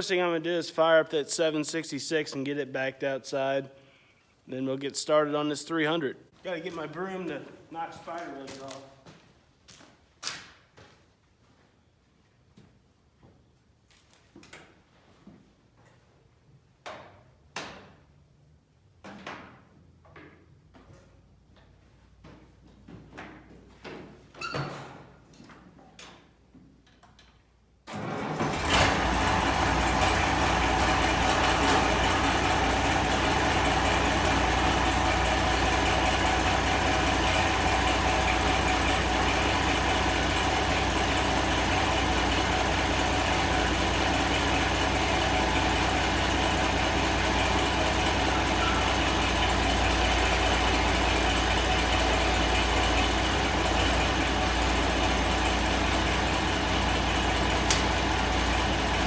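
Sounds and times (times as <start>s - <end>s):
tractor engine starting and idling: 27.8s - 59.0s.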